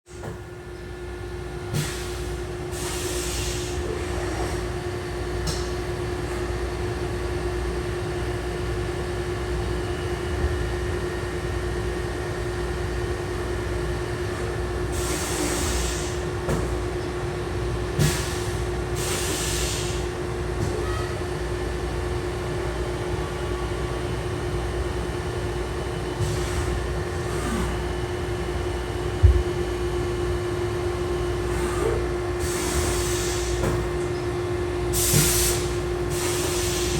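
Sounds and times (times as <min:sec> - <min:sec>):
machine humming: 0:28.4 - 0:32.4.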